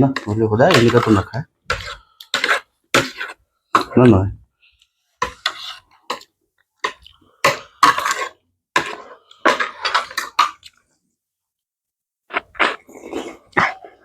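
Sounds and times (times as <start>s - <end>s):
slurping and chewing noodles: 12.3s - 14.0s.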